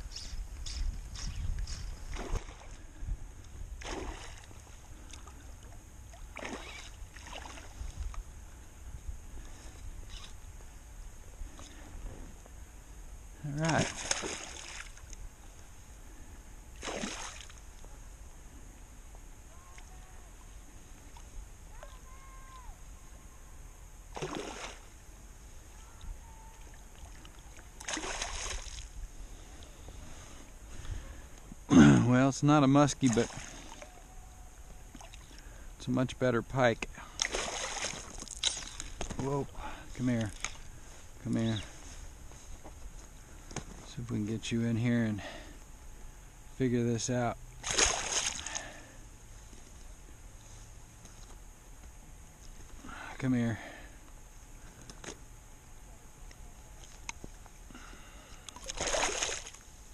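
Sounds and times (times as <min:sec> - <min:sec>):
wind rumbling on microphone: 0:00.0 - 0:13.4
water splashing: 0:03.8 - 0:07.8, 0:13.6 - 0:15.2, 0:16.8 - 0:17.6, 0:24.1 - 0:25.0, 0:26.6 - 0:28.9, 0:33.0 - 0:33.9, 0:37.2 - 0:39.0, 0:47.6 - 0:48.7, 0:58.6 - 0:59.6.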